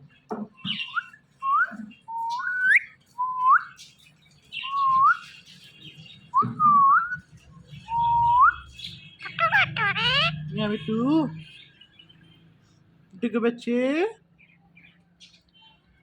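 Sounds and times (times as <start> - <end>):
parrot whistling: 7.9 - 10.4.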